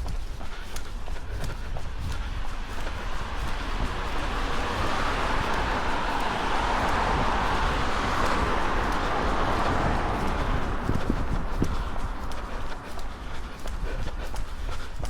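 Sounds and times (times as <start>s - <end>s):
wind rumble on microphone: 0.0s - 15.0s
car passing by: 2.3s - 13.8s.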